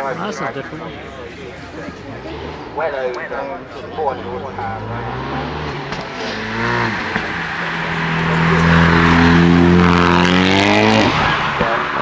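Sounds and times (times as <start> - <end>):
car engine accelerating hard: 0.6 - 12.0.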